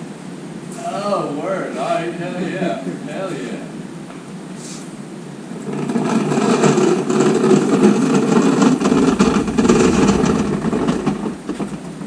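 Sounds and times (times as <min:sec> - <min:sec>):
car engine running rough: 0:05.6 - 0:12.0.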